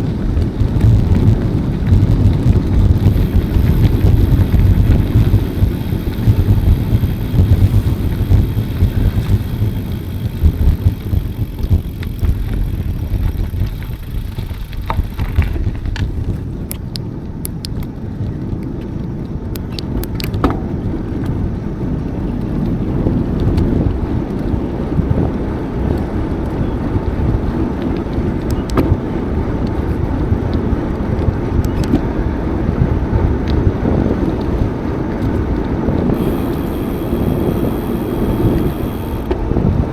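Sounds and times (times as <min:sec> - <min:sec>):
bicycle clicks and rattles: 0:00.0 - 0:39.9
bicycle tyre noise: 0:00.0 - 0:39.9
wind rumble on microphone: 0:00.0 - 0:39.9.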